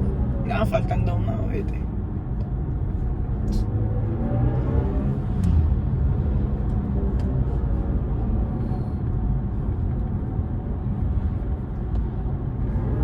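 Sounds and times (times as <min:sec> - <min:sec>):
road and tyre noise: 0:00.0 - 0:13.0.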